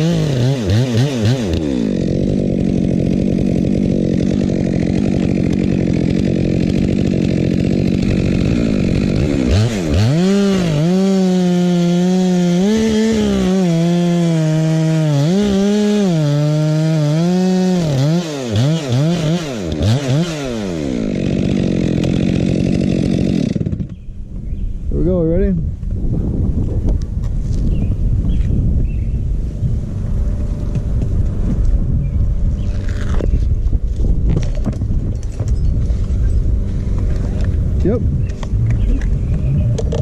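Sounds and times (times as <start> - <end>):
chainsaw cutting wood: 0.0 - 24.2, 32.6 - 37.6.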